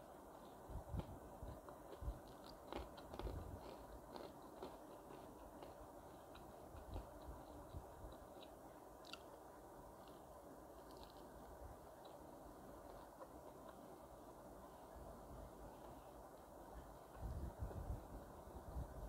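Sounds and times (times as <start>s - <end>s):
person chewing fried chicken: 0.3s - 9.4s, 10.0s - 12.2s.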